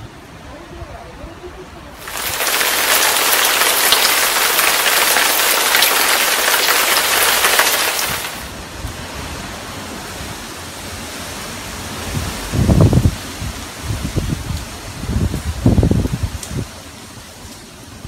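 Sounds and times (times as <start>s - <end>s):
wind in trees: 0.0s - 18.0s
heavy rain hissing: 1.9s - 16.3s
wind gusts on microphone: 11.8s - 16.8s.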